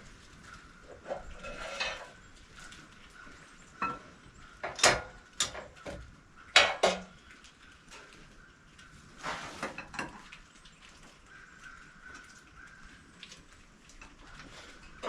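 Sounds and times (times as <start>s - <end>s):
sharp knocks and clatters: 4.6s - 7.2s.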